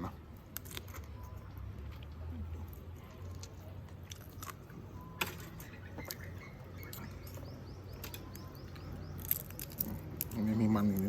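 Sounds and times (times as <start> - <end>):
bird chirping: 4.9 - 11.0.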